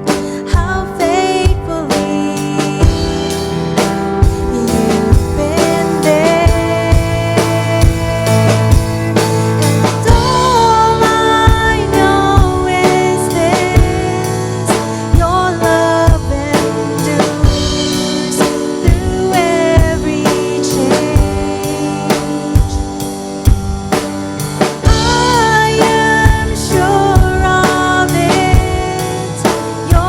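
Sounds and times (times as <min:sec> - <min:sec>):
person singing: 0:00.0 - 0:23.3, 0:24.8 - 0:30.0
drum kit beat: 0:00.0 - 0:30.0.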